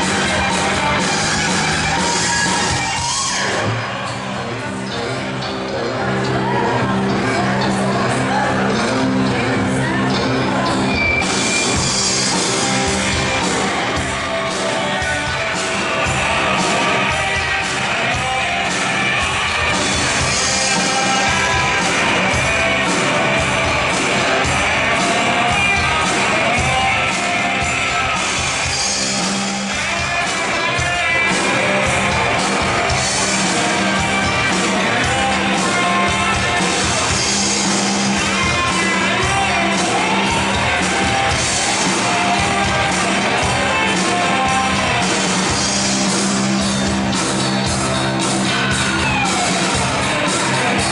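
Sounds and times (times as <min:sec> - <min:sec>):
electric guitars: 0:00.0 - 0:50.9
shouted singing: 0:00.0 - 0:50.9
drum beat: 0:11.2 - 0:50.9.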